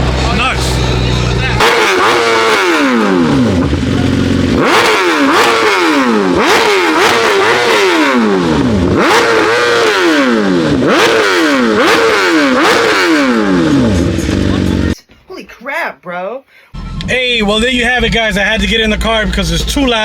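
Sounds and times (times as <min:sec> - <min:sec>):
car engine revving: 0:00.0 - 0:15.0, 0:16.8 - 0:20.0
exhaust crack: 0:00.0 - 0:15.0, 0:16.8 - 0:20.0.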